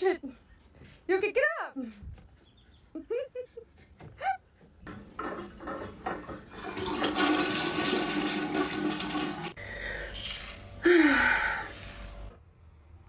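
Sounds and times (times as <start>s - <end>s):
toilet flushing water: 4.9s - 9.6s.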